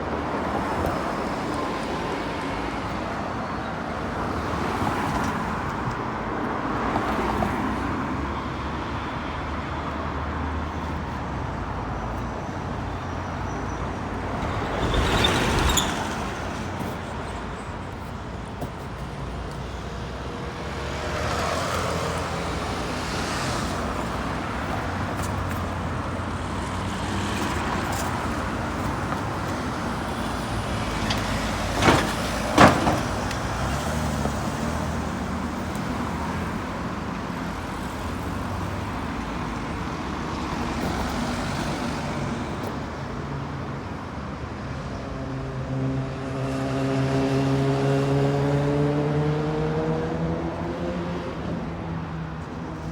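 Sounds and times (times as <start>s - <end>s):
road traffic passing: 0.0s - 52.9s.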